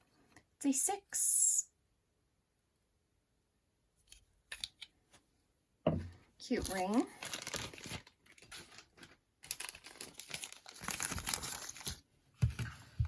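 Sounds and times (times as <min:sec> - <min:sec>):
packaging crinkling and rustling: 0:06.5 - 0:13.0.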